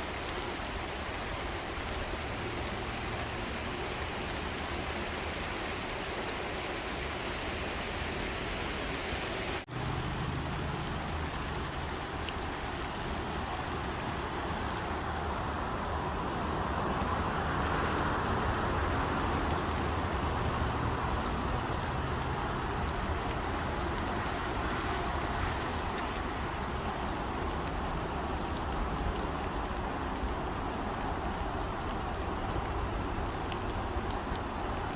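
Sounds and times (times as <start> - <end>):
road traffic rumble: 0.2 - 34.9.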